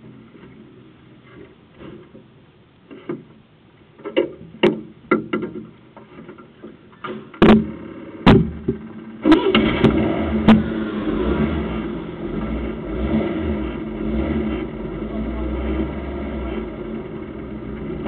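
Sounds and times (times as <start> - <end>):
sharp knocks and clicks: 4.0 - 9.0
car engine running: 7.6 - 18.0.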